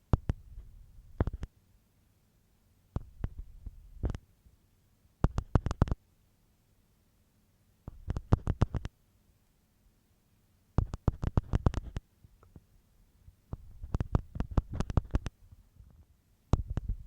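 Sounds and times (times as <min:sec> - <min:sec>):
ear pick scraping inside ear: 0:07.9 - 0:08.9, 0:10.8 - 0:12.0, 0:13.6 - 0:15.3.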